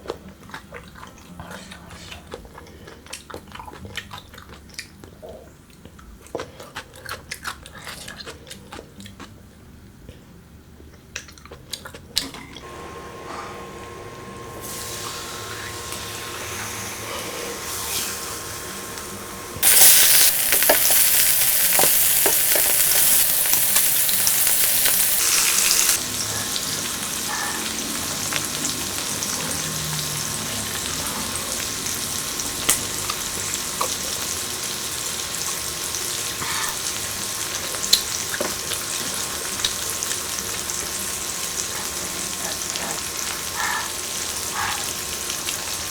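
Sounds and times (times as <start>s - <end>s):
food sizzling on a grill: 12.7s - 45.9s
sharp pops of frying: 19.6s - 26.0s.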